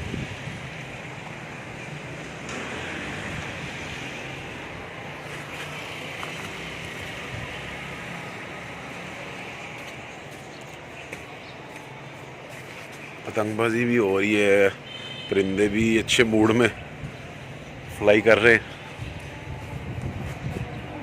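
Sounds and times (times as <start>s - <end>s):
strong wind on microphone: 0.0s - 1.8s, 18.9s - 21.0s.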